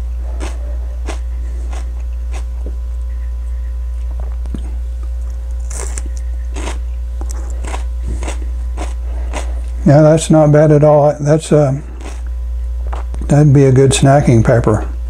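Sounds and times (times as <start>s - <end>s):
steady low hum: 0.0s - 15.0s
crisp crunches of chewing pepper: 0.2s - 9.8s, 11.9s - 12.3s.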